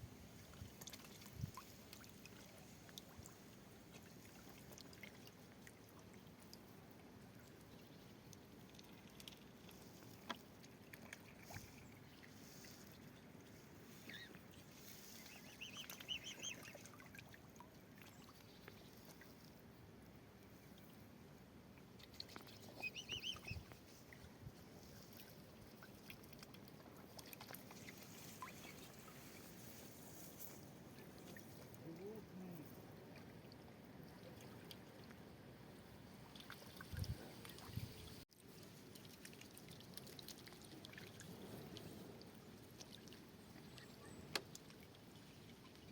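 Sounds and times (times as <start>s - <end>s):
faint bird calls: 13.9s - 17.0s, 22.4s - 23.7s.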